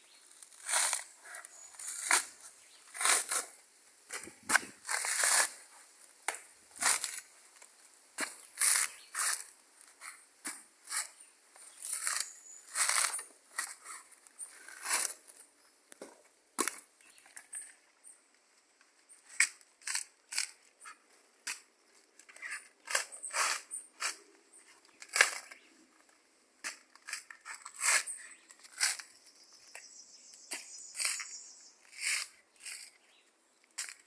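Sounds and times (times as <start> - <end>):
crunching dry plant material: 0.1 - 5.7, 6.8 - 15.5.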